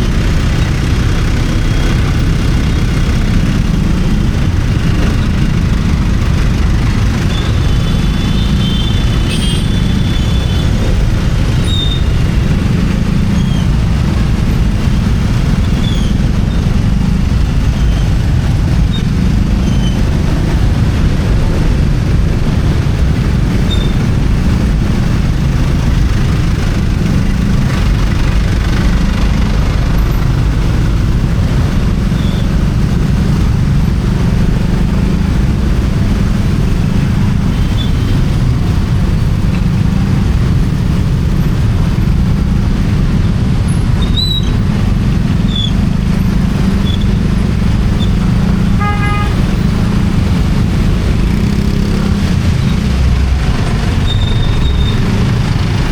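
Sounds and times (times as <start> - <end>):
motorcycle engine: 0.0 - 55.9
wind and road noise: 0.0 - 55.9
vehicle horn toot: 7.8 - 10.6, 48.8 - 49.7.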